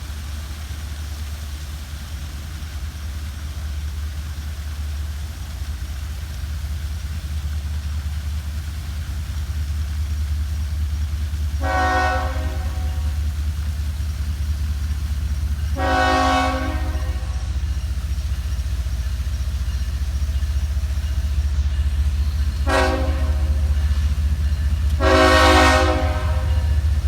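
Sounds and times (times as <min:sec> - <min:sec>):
diesel train low rumble: 0:00.0 - 0:27.0
locomotive air horn: 0:11.6 - 0:13.3, 0:15.7 - 0:17.7, 0:22.4 - 0:24.1, 0:24.8 - 0:27.0.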